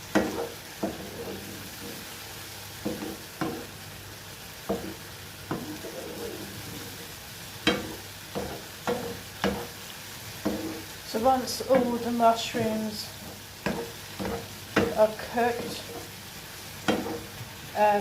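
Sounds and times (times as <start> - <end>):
mushrooms sizzling in a frying pan: 0.0 - 18.0
utensil knocking against pan: 16.9 - 17.2.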